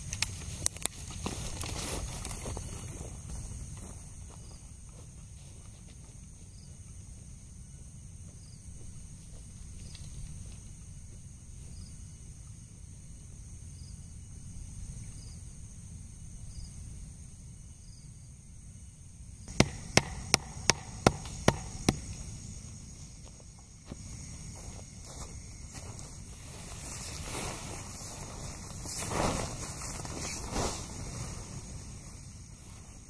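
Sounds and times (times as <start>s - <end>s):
high insect drone: 0.0s - 33.0s
sharp knocks: 19.5s - 22.2s.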